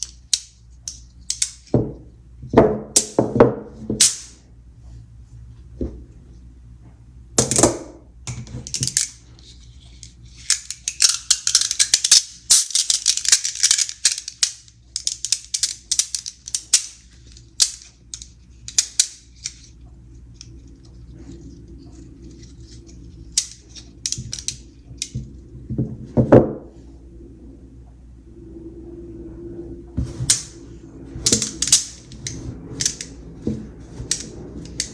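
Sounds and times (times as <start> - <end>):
magnet balls clicking together: 0.0 - 1.7, 8.6 - 9.2, 9.9 - 19.8, 22.0 - 25.3, 31.2 - 34.9.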